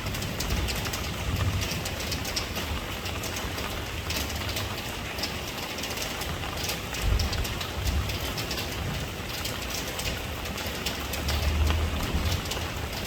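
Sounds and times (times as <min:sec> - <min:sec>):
raindrops ticking: 0:00.0 - 0:13.0
rain hissing: 0:06.9 - 0:13.0.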